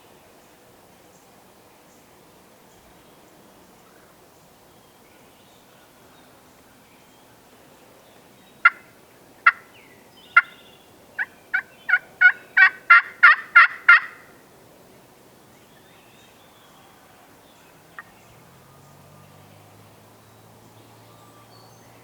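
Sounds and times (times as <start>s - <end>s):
turkey yelping: 8.6s - 9.7s, 11.2s - 14.3s.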